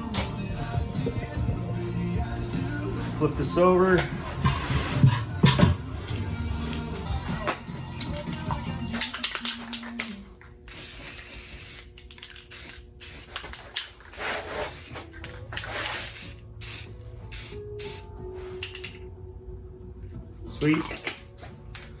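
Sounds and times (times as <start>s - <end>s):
spray paint hissing in bursts: 10.7s - 18.8s.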